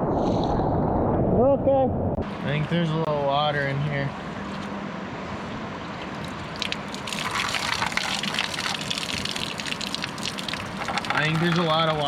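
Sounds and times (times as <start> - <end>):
water splashing and dripping: 6.0 - 12.0
water rushing: 6.1 - 12.0.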